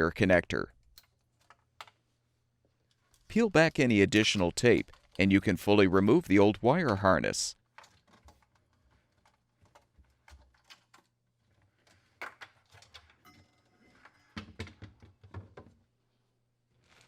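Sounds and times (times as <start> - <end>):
plastic parts clicking and knocking: 0.8 - 2.1, 4.1 - 5.8, 6.7 - 13.3.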